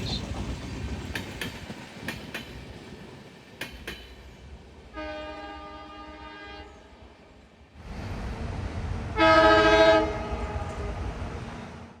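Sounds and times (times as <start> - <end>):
train wheels clicking over rail joints: 0.0 - 4.8
locomotive horn blast: 4.9 - 6.9, 9.1 - 11.2.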